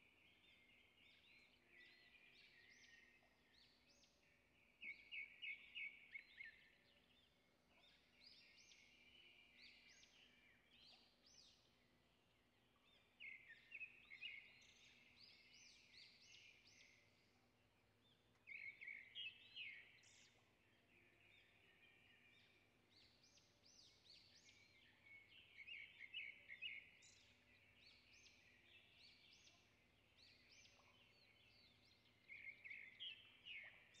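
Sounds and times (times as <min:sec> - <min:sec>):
birds chirping: 0:18.1 - 0:34.0.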